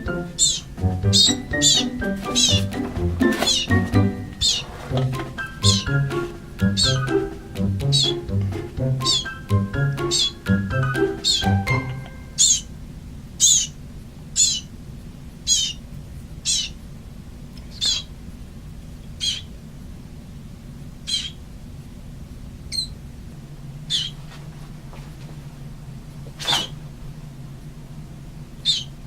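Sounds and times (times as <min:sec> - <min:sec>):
baby bird cheeping: 0:00.0 - 0:04.8, 0:05.4 - 0:08.3, 0:09.0 - 0:12.7, 0:13.4 - 0:13.8, 0:14.4 - 0:14.7, 0:15.5 - 0:15.8, 0:16.4 - 0:16.8, 0:17.7 - 0:18.1, 0:19.2 - 0:19.6, 0:21.0 - 0:21.4, 0:22.7 - 0:23.0, 0:23.9 - 0:24.2, 0:28.6 - 0:29.0
steady low hum: 0:00.0 - 0:29.0.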